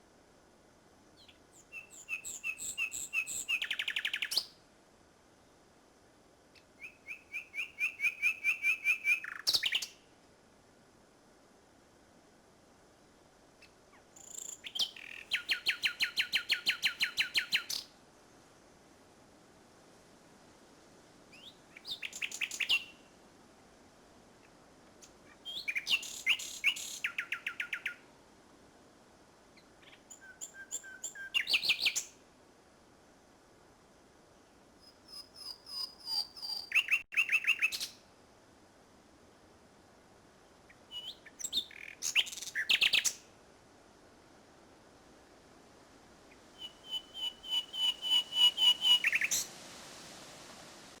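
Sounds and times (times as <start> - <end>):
nightingale singing: 1.2 - 4.6, 6.6 - 10.0, 13.6 - 17.9, 21.3 - 23.0, 25.3 - 28.0, 29.6 - 32.2, 34.8 - 38.0, 40.6 - 43.2, 46.3 - 49.5.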